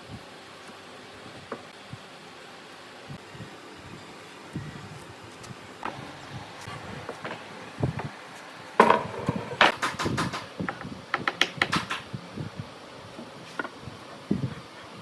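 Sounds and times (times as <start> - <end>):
wood and tools knocking: 7.0 - 8.1, 8.8 - 12.1, 13.2 - 13.8.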